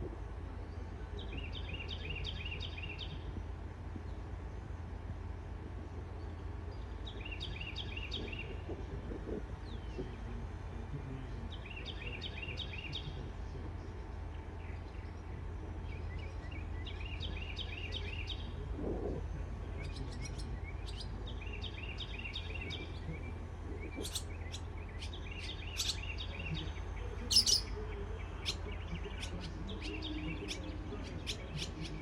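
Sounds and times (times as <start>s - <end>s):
small birds chirping: 0.0s - 32.0s
steady low hum: 0.0s - 32.0s.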